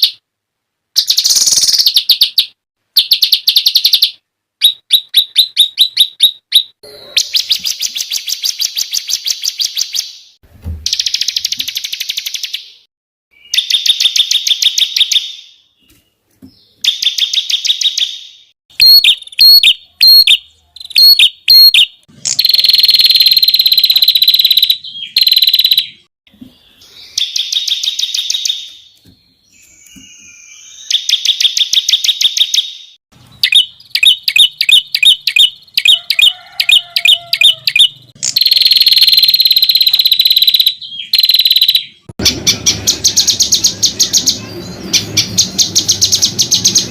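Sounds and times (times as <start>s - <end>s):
piercing bird notes: 16.8s - 46.9s
songbirds trilling: 33.4s - 38.7s, 39.5s - 46.9s.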